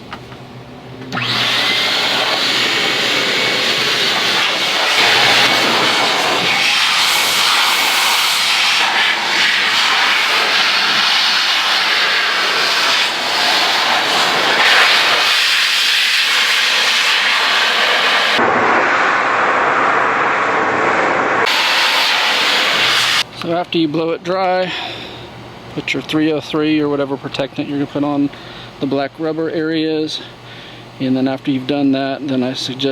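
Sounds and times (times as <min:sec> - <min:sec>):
air blower rushing: 0:01.1 - 0:23.3.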